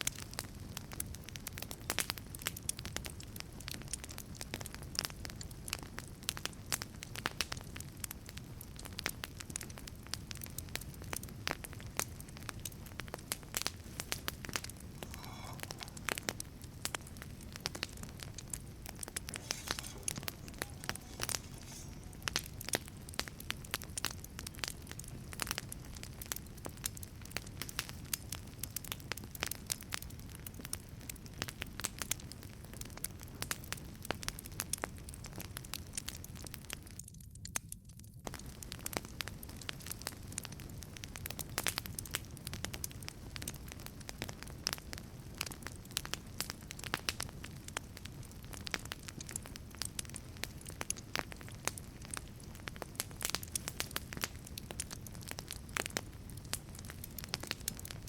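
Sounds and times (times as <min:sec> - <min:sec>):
low rumble of flame: 0:00.0 - 0:58.0
wood fire crackling and popping: 0:00.0 - 0:58.0
faint hissing: 0:13.7 - 0:23.6.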